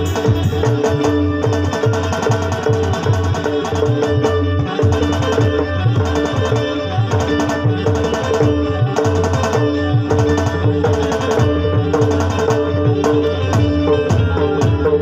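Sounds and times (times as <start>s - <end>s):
electronic tabla-style drums: 0.0s - 15.0s
steady held notes: 0.0s - 15.0s.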